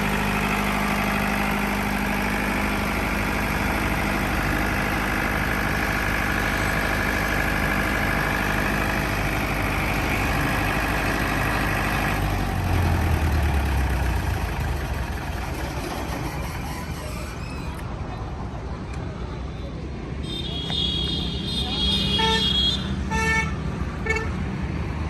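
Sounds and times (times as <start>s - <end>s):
diesel generator running: 0.0s - 18.7s.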